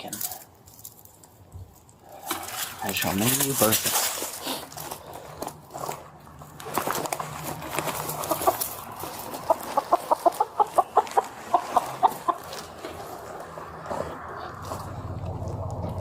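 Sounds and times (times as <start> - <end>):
chicken clucking: 7.9 - 14.8.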